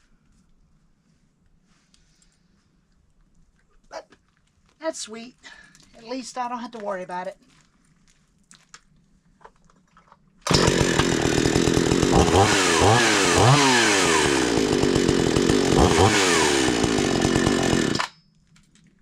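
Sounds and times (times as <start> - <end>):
chainsaw revving: 10.5 - 18.1.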